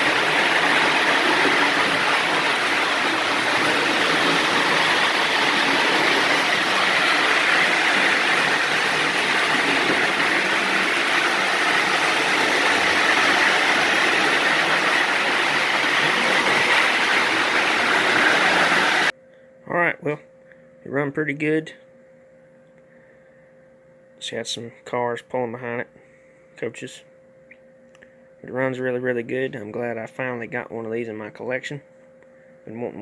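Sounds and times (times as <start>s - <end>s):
toy train whirring on track: 0.0s - 19.1s.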